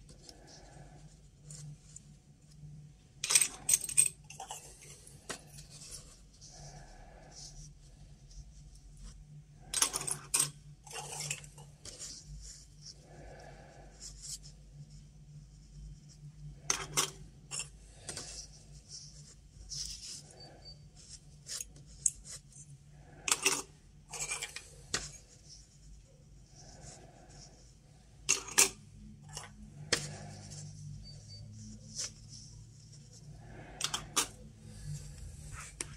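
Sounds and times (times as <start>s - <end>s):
metal objects clinking and scraping: 3.2s - 6.7s, 9.6s - 12.1s, 16.6s - 18.4s, 21.4s - 25.3s, 28.2s - 32.5s, 33.4s - 34.4s.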